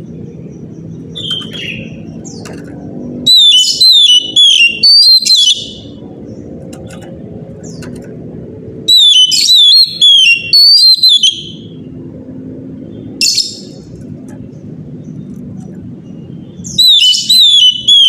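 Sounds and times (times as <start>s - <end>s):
bird singing whistled notes: 0.0s - 6.5s, 8.8s - 11.8s, 16.0s - 18.0s
steady low hum: 0.0s - 18.0s.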